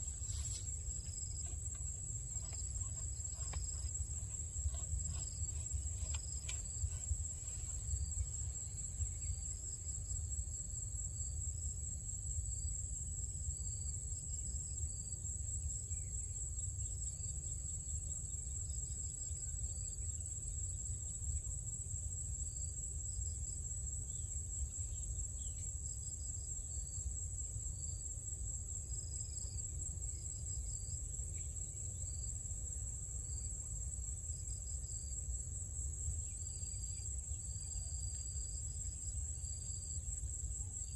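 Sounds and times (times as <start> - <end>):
high-pitched insect chorus: 0.0 - 40.9.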